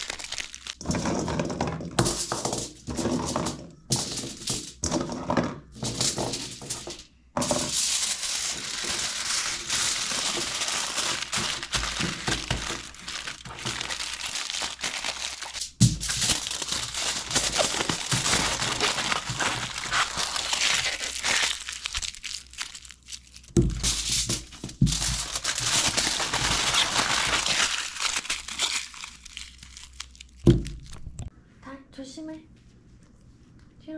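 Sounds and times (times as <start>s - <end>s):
paper crinkling and crumpling: 0.0s - 0.8s, 7.7s - 31.3s.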